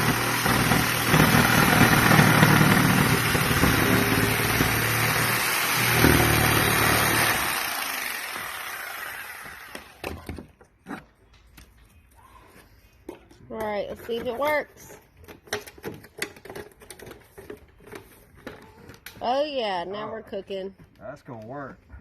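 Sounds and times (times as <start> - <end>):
electric jigsaw cutting: 0.0 - 10.2.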